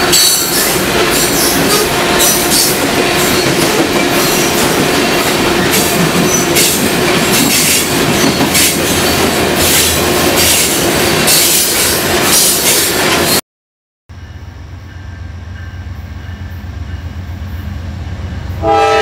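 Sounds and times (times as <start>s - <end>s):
wheel on rail noise: 0.0s - 13.4s.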